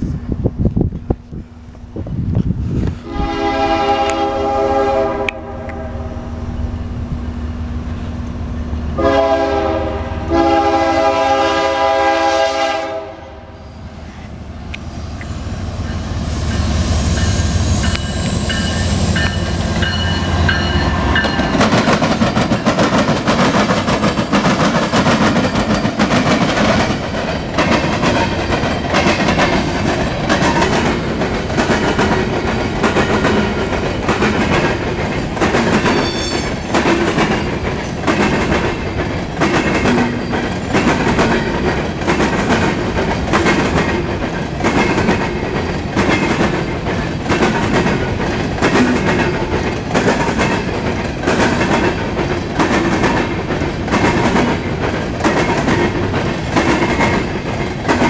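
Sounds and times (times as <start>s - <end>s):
diesel locomotives rumbling past: 0.0s - 58.0s
wheels clicking over rail joints: 17.2s - 58.0s.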